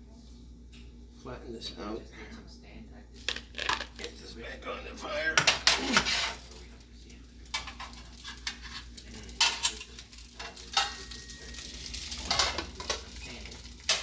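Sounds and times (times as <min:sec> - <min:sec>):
utensil scraping and knocking pan: 0:05.4 - 0:06.4
food sizzling in a frying pan: 0:05.9 - 0:14.0.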